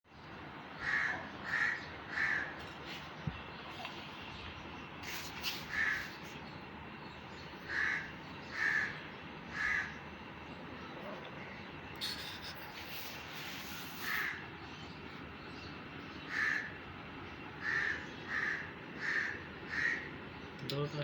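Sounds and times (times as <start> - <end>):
crow cawing: 0.8 - 2.5, 5.7 - 6.1, 7.7 - 10.0, 16.3 - 16.8, 17.6 - 20.2.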